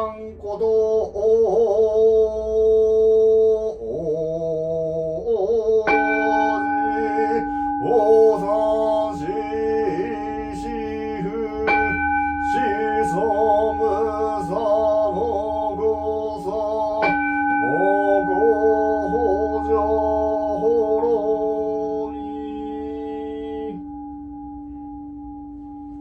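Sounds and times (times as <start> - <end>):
man chanting slowly: 0.0 - 23.8
large bowl bell ringing: 5.9 - 26.0.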